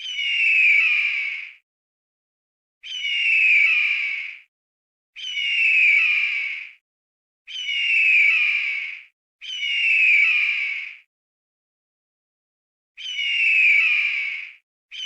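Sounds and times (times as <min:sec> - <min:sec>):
bird squawking harshly: 0:07.5 - 0:11.0.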